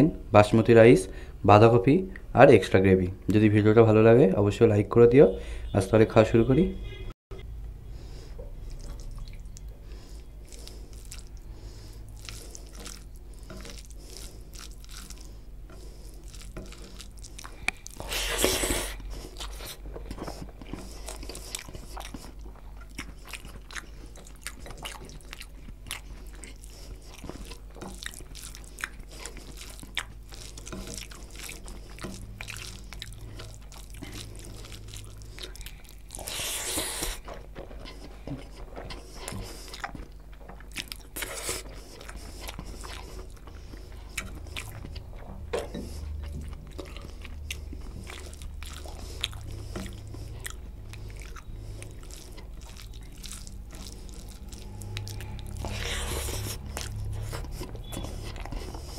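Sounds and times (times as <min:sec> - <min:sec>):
man chewing with wet mouth sounds: 0:07.4 - 0:58.9
rush of breath taking a mouthful: 0:36.2 - 0:37.3.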